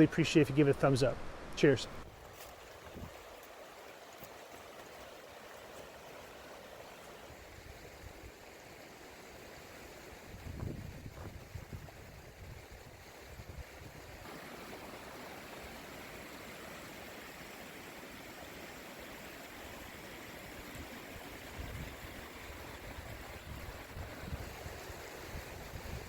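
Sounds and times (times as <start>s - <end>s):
river water rushing: 2.1s - 10.2s, 14.2s - 25.9s.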